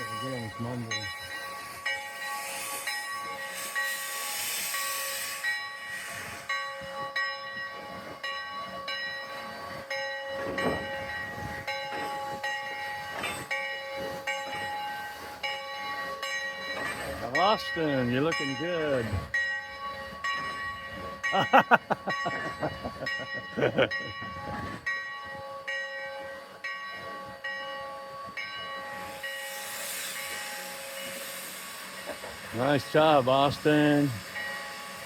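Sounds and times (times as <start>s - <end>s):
steam hissing: 0.0s - 8.2s, 28.3s - 35.0s
steam locomotive mechanical chugging: 0.0s - 35.0s.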